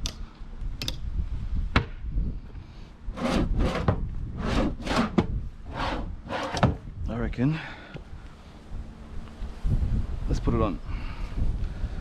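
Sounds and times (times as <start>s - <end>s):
scraping and rubbing on wood: 3.2s - 6.8s.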